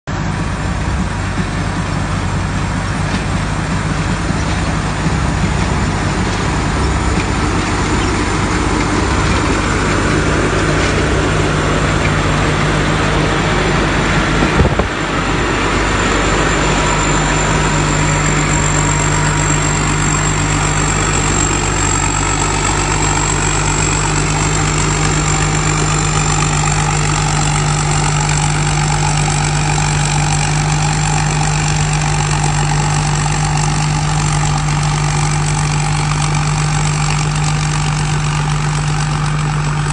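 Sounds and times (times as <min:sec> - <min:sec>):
harvester engine running: 0:00.0 - 0:39.9
high whine: 0:00.1 - 0:39.9.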